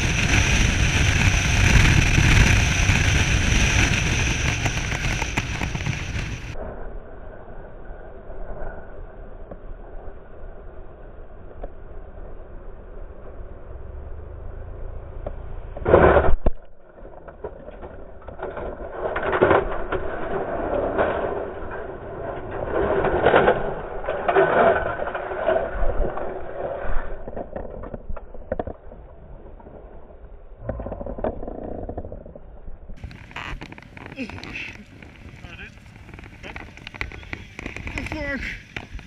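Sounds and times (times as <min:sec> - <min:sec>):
motorcycle scraping along road: 0:00.0 - 0:06.8, 0:33.0 - 0:39.0.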